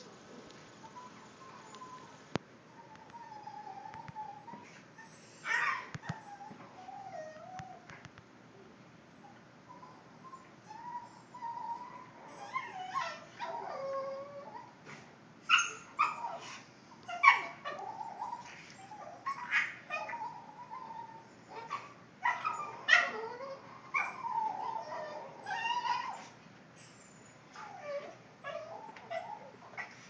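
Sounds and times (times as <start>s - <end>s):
dog whining: 0.8s - 7.9s, 9.2s - 14.8s, 15.5s - 30.0s
dog yipping: 2.8s - 6.5s, 15.5s - 30.0s.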